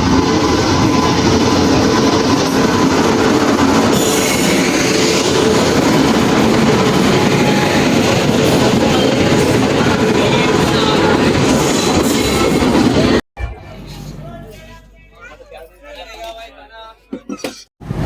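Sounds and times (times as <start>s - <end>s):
train wheels rumbling on rails: 0.0s - 14.3s.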